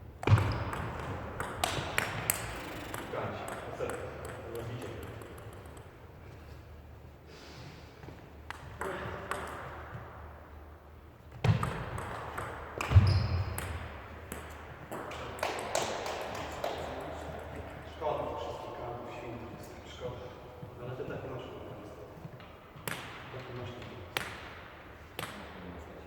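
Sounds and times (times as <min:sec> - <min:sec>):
table tennis ball hits: 0:00.2 - 0:05.9, 0:11.4 - 0:17.7.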